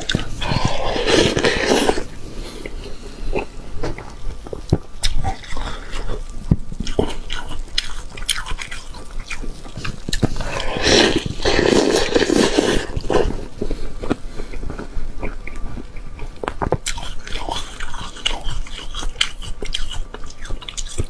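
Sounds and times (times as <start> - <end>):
clicking and smacking chewing: 2.6 - 10.7, 13.0 - 21.0.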